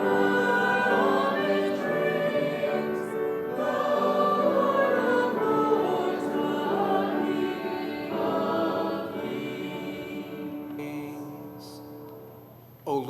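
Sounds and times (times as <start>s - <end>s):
congregation singing a hymn: 0.0s - 12.0s.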